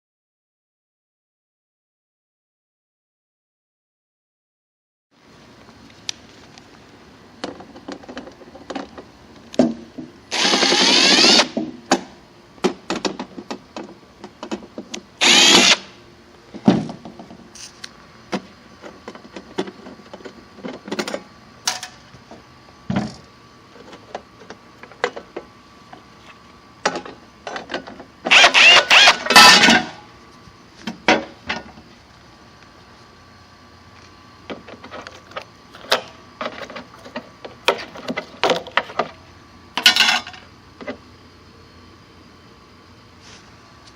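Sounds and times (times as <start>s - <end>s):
power drill spinning: 10.3s - 11.6s, 15.2s - 15.9s, 28.3s - 29.9s.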